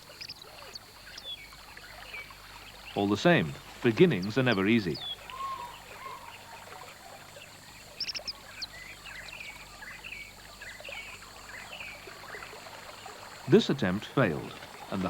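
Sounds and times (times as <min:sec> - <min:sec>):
faint hiss: 0:00.0 - 0:15.0
small birds chirping: 0:00.0 - 0:15.0.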